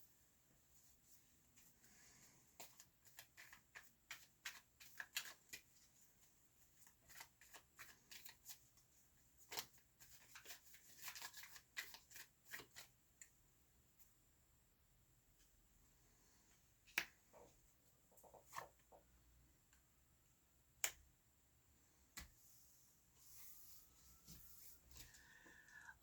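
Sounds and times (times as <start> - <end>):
cards being shuffled: 2.6 - 5.9, 6.8 - 8.6, 9.4 - 12.9.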